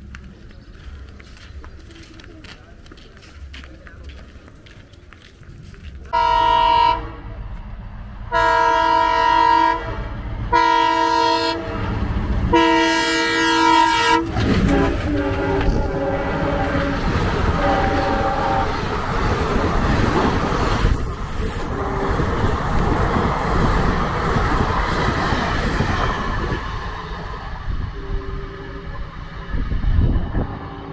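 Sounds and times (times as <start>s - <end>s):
train rumbling past: 0.0s - 30.9s
train horn blasts: 6.1s - 7.3s, 8.3s - 18.9s, 21.4s - 22.9s, 27.7s - 29.0s
wheels clattering over rail joints: 14.2s - 27.7s.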